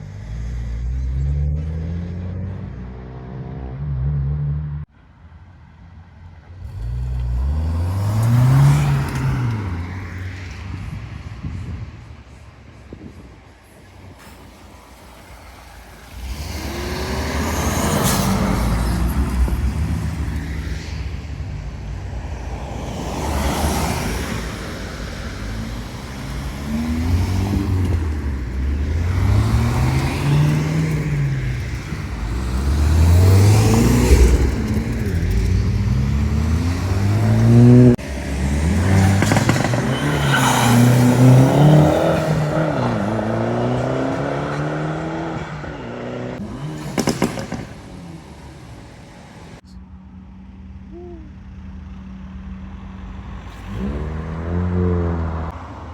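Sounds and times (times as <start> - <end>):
car engines revving: 6.2 - 55.9
short sharp crack: 46.8 - 48.1.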